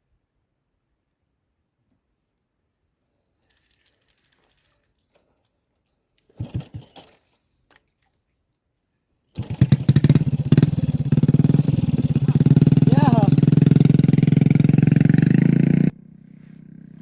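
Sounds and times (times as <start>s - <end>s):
small engine chugging: 6.3s - 7.2s, 9.4s - 17.0s.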